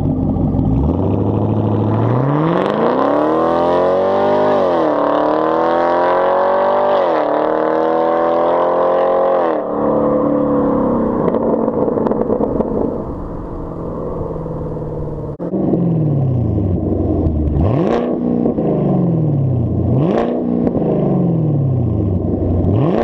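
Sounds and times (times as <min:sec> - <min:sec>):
crackling exhaust overrun: 0:00.0 - 0:02.5, 0:09.6 - 0:23.0
car engine accelerating: 0:00.0 - 0:23.0.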